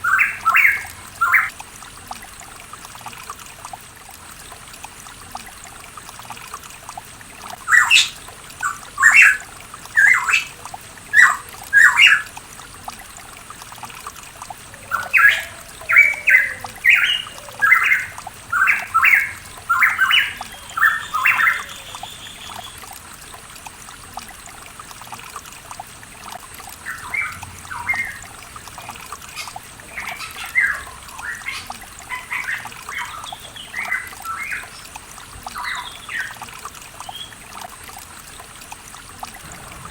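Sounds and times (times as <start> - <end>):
trickle of running water: 0.0 - 39.9
bird song of clipped notes: 14.8 - 22.9.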